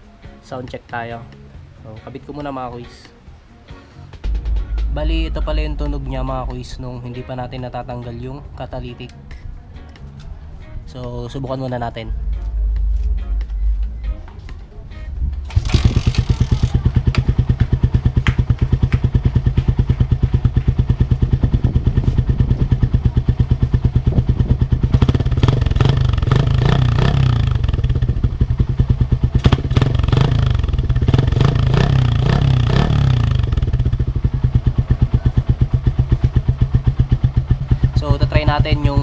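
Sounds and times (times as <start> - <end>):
motorcycle engine idling and revving: 15.2 - 39.0.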